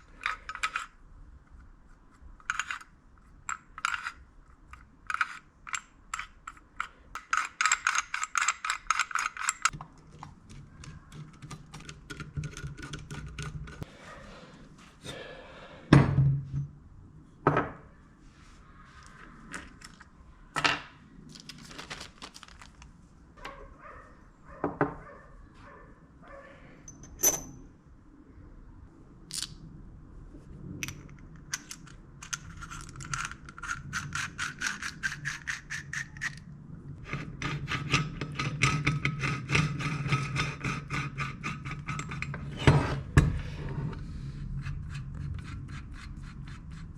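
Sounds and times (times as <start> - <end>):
metal tools handled on workbench: 26.9 - 27.6.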